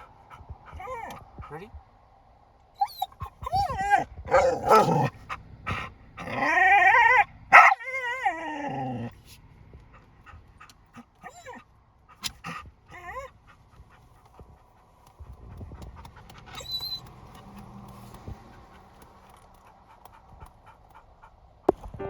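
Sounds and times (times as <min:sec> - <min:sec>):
dog whimpering: 0:00.0 - 0:01.7, 0:02.8 - 0:09.3, 0:10.6 - 0:11.6, 0:12.2 - 0:13.3, 0:16.4 - 0:18.9
dog whining: 0:00.0 - 0:01.7, 0:02.8 - 0:09.4, 0:10.6 - 0:13.3, 0:16.3 - 0:18.5.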